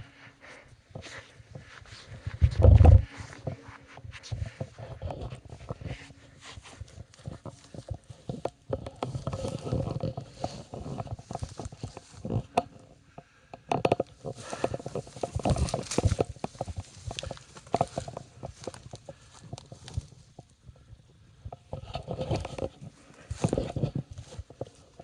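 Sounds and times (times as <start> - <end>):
footsteps scrambling over rock: 13.9 - 20.6.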